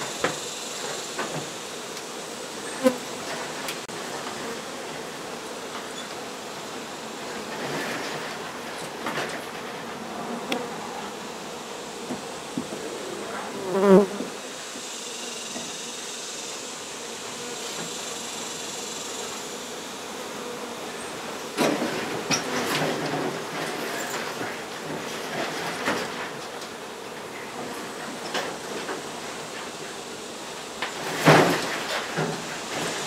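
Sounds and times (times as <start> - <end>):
honey bees buzzing: 9.6 - 22.4.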